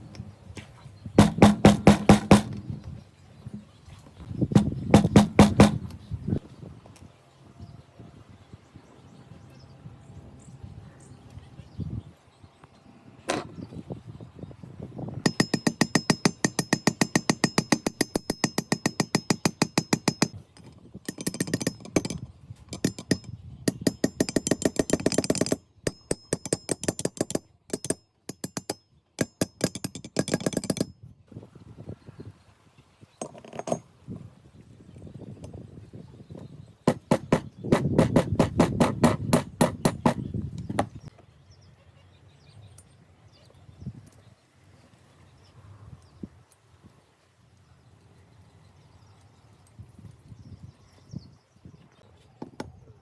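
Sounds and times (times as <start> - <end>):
rapid metallic clicking of hand tool: 1.2 - 2.6, 4.6 - 5.9, 15.2 - 30.9, 36.9 - 40.2.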